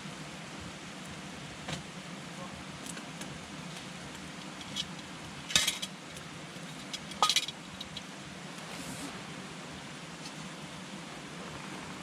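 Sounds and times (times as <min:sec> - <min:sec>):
fire hissing: 0:02.8 - 0:10.7.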